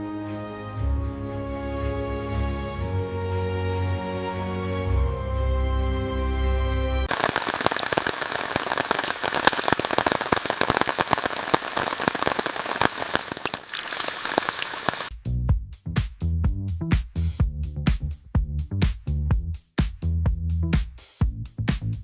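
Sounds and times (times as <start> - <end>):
heavy rain falling: 7.1 - 15.1.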